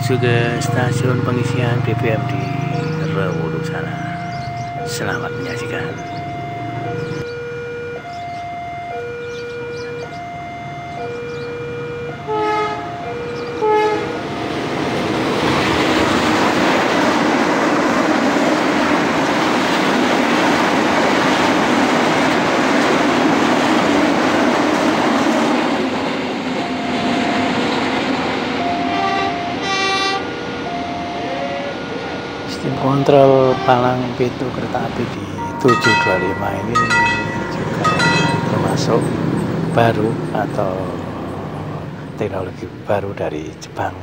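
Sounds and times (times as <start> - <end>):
freight train rumbling: 0.0 - 7.3, 9.5 - 44.0
level crossing warning chime: 0.0 - 15.0, 26.5 - 40.3
train horn blasts: 8.8 - 14.6, 28.6 - 34.4, 35.2 - 39.0.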